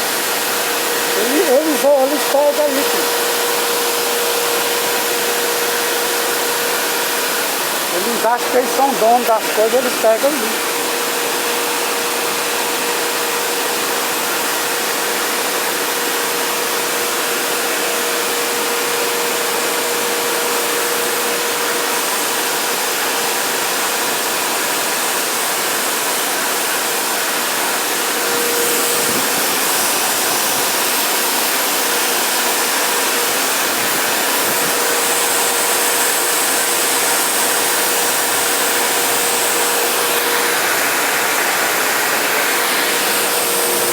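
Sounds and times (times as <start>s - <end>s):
waterfall rushing: 0.0s - 11.3s, 27.7s - 43.9s.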